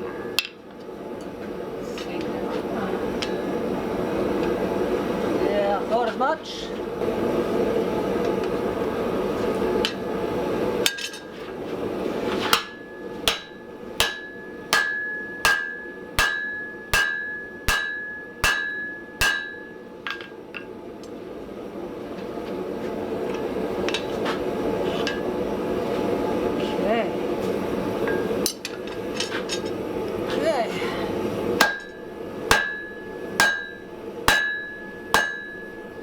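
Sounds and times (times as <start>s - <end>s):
hammer blows on steel anvil: 12.5s - 19.8s, 31.6s - 36.0s.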